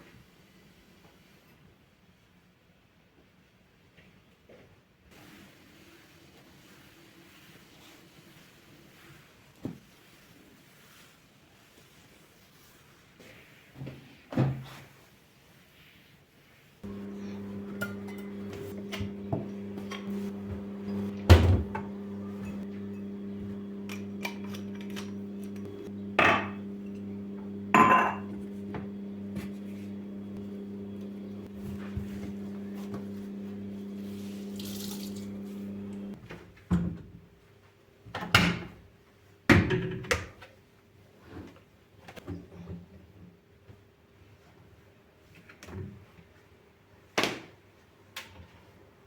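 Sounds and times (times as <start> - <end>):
electrical hum: 16.8 - 36.2
dishes clinking and knocking: 27.8 - 28.4.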